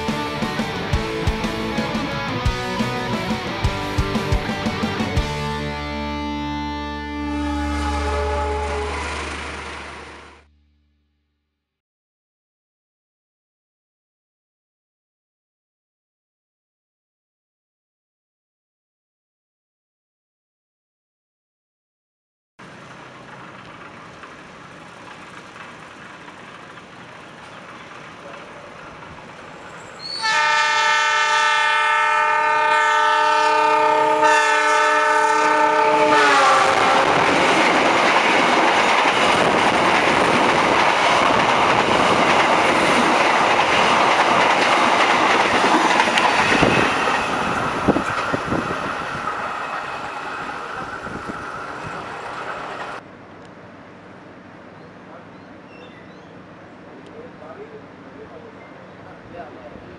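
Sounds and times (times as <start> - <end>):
train carriages rumbling past: 0.0 - 6.0, 7.2 - 10.4, 22.6 - 59.9
train horn: 7.0 - 10.4, 30.0 - 37.4
train wheel clicks: 22.8 - 29.9, 37.1 - 50.2.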